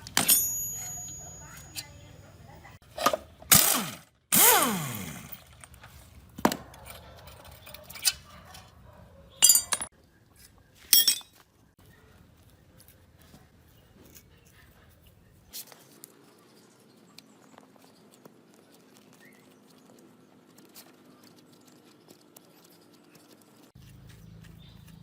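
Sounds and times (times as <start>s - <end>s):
metal tools clinking and knocking: 0.0s - 2.4s, 6.7s - 8.7s, 9.4s - 9.9s, 10.9s - 11.4s.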